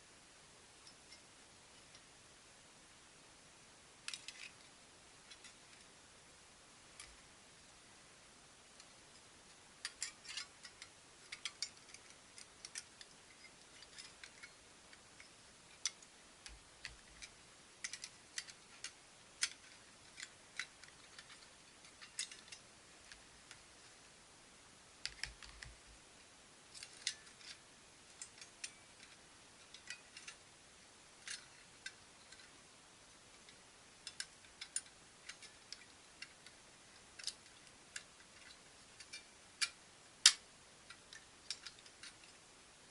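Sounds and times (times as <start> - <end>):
light clicks and ticks: 8.8 - 24.0, 25.0 - 25.9, 26.7 - 30.4, 31.2 - 42.9.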